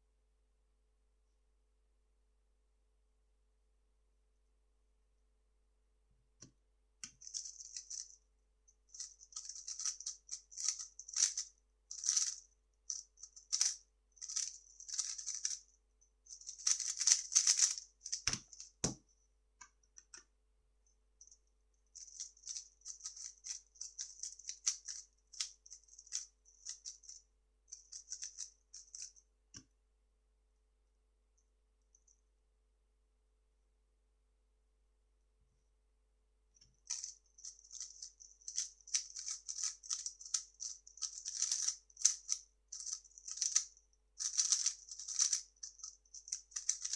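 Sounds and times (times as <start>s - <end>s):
puzzle cube clicking and rattling: 7.1s - 8.2s, 9.0s - 15.7s, 16.3s - 18.9s, 22.0s - 29.2s, 36.8s - 46.9s.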